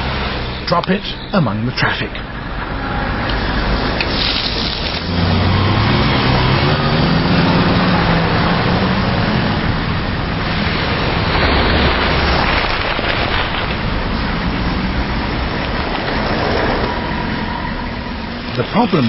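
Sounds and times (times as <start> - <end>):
cars driving past: 0.0 - 19.0
passing vehicle engine hum: 0.0 - 19.0.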